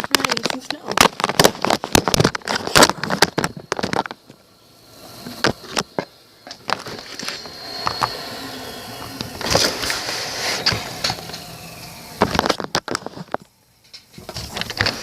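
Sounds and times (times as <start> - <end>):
rustling handling noise: 0.0 - 4.4.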